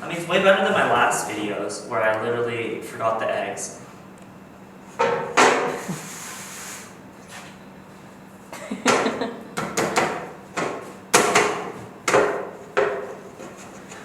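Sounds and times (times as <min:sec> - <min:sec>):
faint steady hum: 0:00.0 - 0:14.0
sharp knocks and clatters: 0:08.9 - 0:13.7.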